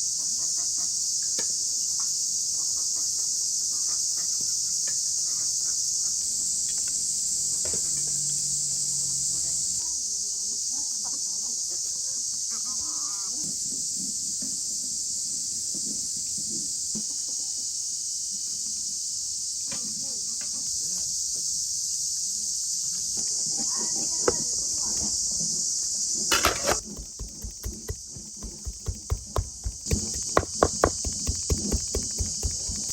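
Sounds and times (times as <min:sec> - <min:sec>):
insects chorus hissing: 0:00.0 - 0:32.9
sharp knocks: 0:26.3 - 0:32.9.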